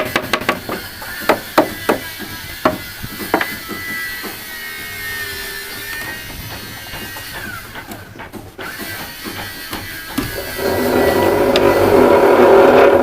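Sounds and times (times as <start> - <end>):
tools tapping on wooden boards: 0.0 - 4.5, 5.8 - 10.5.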